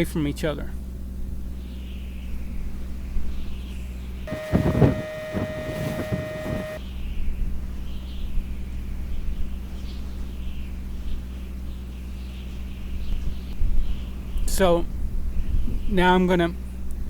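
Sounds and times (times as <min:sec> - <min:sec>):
power driver whining: 0:04.3 - 0:06.8
steady low hum: 0:04.3 - 0:06.8.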